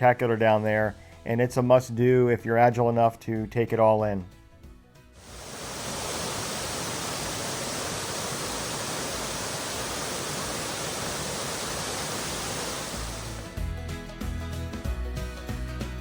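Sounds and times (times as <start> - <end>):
music: 0.0 - 5.3, 13.0 - 16.0
waterfall rushing: 5.2 - 13.5.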